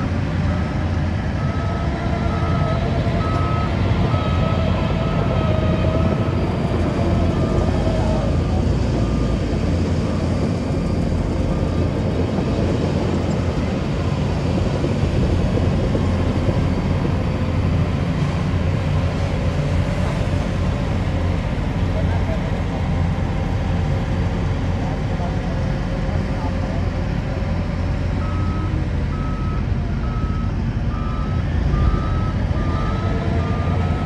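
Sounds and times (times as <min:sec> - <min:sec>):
diesel engine rumbling: 0:00.0 - 0:34.0.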